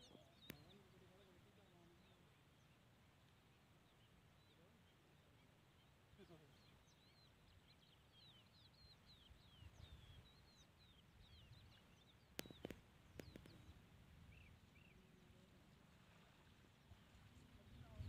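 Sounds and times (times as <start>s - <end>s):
small birds chirping: 0.0s - 18.0s
sharp clicks: 12.4s - 13.7s.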